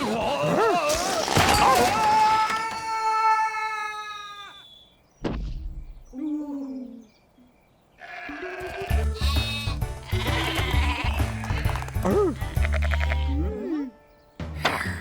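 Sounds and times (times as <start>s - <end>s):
cartoon sheep bleating: 8.0s - 13.8s
music: 8.6s - 15.0s.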